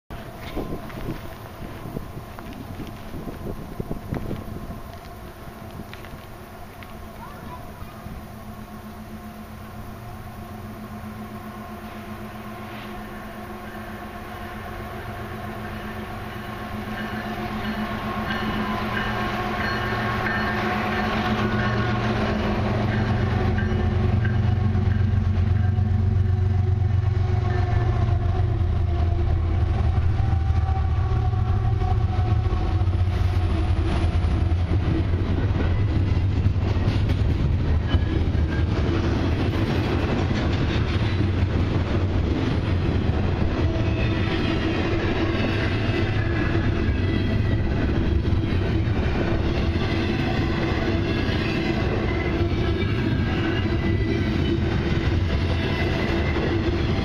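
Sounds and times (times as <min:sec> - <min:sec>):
wheels clicking over rail joints: 0:00.1 - 0:09.1, 0:31.8 - 0:57.0
diesel locomotive engines: 0:00.1 - 0:57.0.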